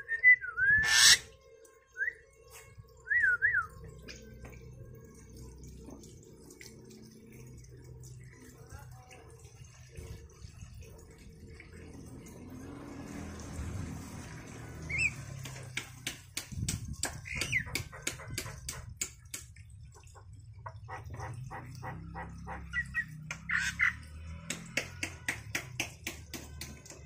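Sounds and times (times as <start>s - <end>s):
bird squawking: 0.8s - 1.2s
sharp clicks and taps: 15.4s - 19.7s, 24.4s - 27.0s.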